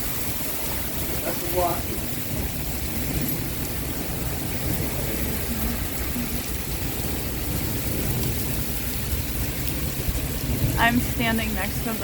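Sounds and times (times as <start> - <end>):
heavy rain pouring: 0.0 - 12.0
low rumble: 0.0 - 12.0.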